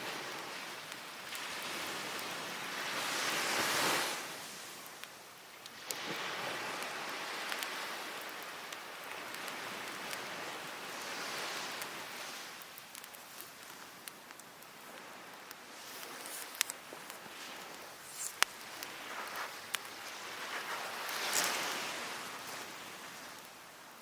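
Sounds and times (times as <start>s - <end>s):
campfire crackling: 0.0s - 24.0s
sea waves breaking on beach: 0.0s - 24.0s.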